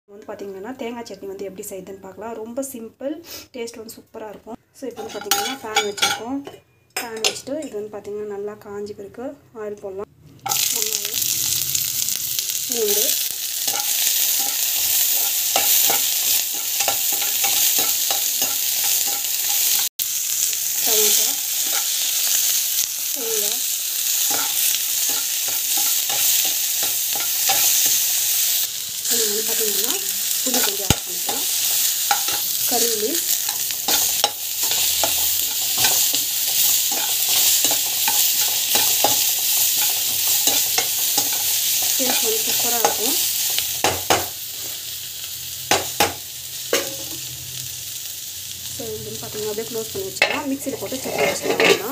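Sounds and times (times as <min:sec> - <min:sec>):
onions sizzling in hot oil: 0:05.0 - 0:06.2, 0:10.4 - 0:51.9
metal ladle scraping pan: 0:05.0 - 0:06.3, 0:13.2 - 0:19.9, 0:30.5 - 0:32.6, 0:33.2 - 0:43.0, 0:50.2 - 0:51.9.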